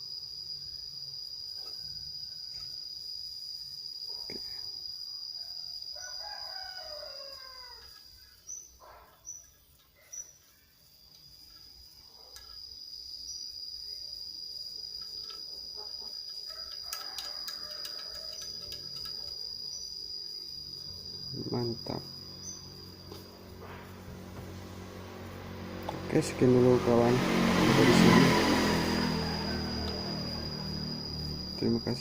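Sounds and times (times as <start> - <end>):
crickets trilling: 0.0 - 32.0
rooster crowing: 5.3 - 8.2, 15.8 - 19.5, 21.0 - 31.8.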